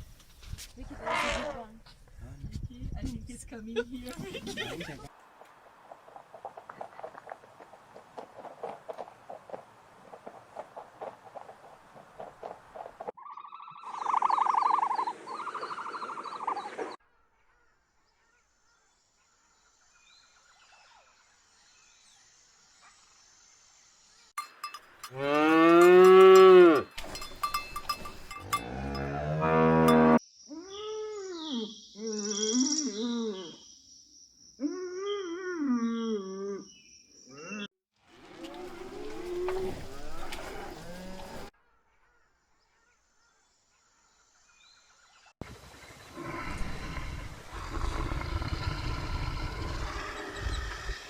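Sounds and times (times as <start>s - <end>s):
cow mooing: 25.1s - 26.9s, 28.4s - 30.2s, 38.1s - 41.5s.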